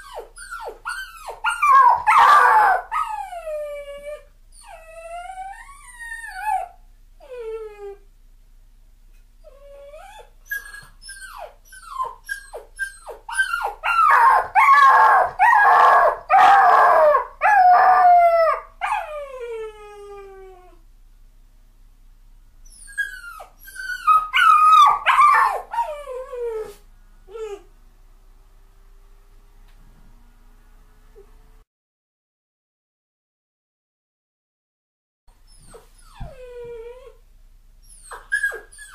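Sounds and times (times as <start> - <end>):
dog yelping and howling: 0.0 - 8.0, 9.5 - 20.8, 22.7 - 27.7, 37.9 - 38.9.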